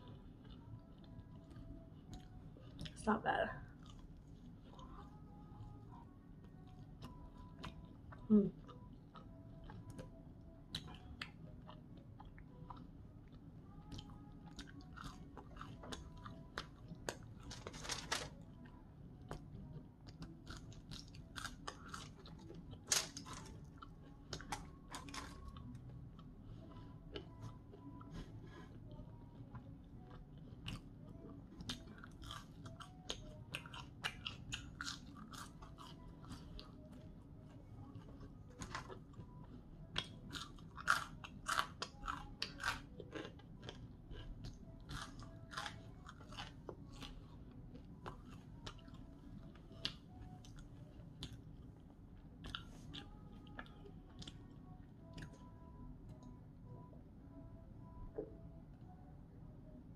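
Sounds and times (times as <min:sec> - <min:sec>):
chewing: 0:00.0 - 0:56.4
crunching fries: 0:10.7 - 0:51.6.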